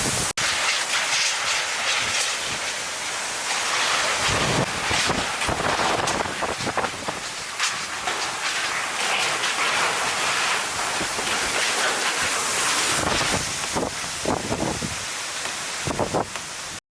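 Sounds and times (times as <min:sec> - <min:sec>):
heavy rain: 0:00.0 - 0:16.8
hurricane wind: 0:00.0 - 0:16.8
wind buffeting microphone: 0:04.1 - 0:08.0, 0:10.7 - 0:15.1, 0:15.8 - 0:16.4.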